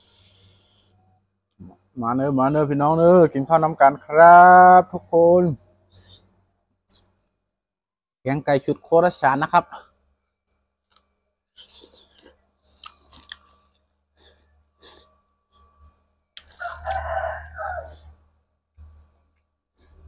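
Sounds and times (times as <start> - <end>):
person chewing food: 11.6 - 15.7, 16.3 - 17.1
crunches and bites: 16.4 - 17.0.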